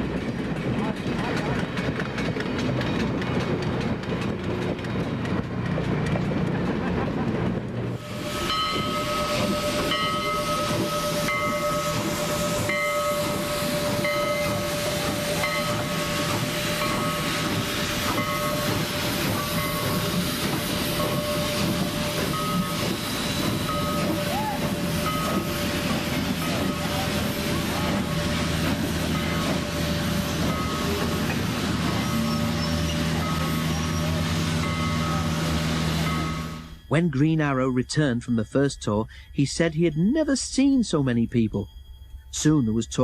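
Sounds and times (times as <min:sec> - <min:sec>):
train rumble and wheel clatter: 0:00.0 - 0:43.0
high ringing tone: 0:08.3 - 0:14.8, 0:26.3 - 0:43.0.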